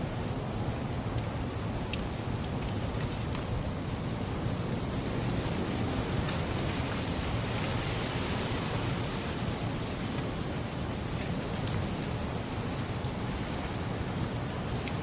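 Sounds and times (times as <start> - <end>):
wood fire crackling: 0.9 - 5.5, 9.8 - 15.0.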